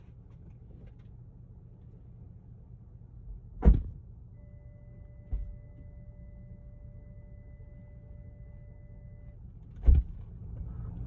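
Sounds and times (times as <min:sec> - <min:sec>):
car door shutting: 0:03.6 - 0:04.0, 0:05.3 - 0:05.6, 0:09.7 - 0:10.2
electronic warning tone: 0:04.4 - 0:09.4.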